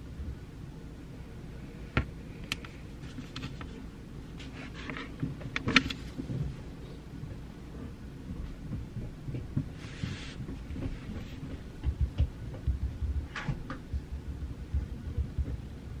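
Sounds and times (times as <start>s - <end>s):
low room rumble: 0.0s - 16.0s
paper or pencil rustle: 4.4s - 5.2s.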